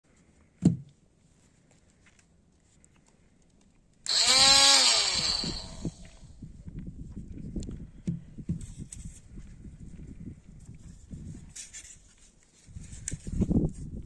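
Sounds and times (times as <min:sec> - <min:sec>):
grinder whining and grinding: 0:04.1 - 0:06.2.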